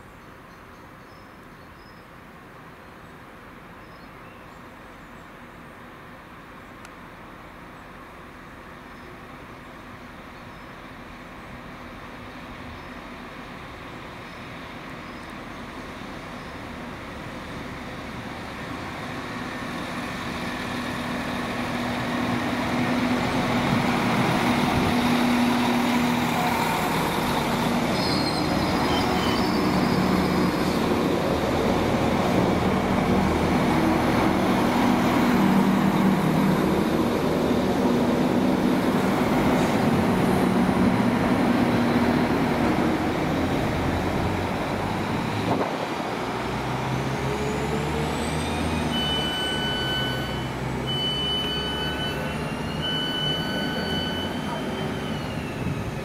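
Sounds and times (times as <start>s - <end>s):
train engine rumbling past: 7.3s - 56.0s.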